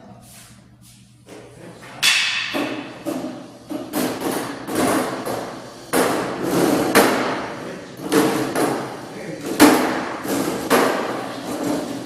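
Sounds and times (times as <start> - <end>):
loud echoing bangs and thuds: 2.0 - 3.1.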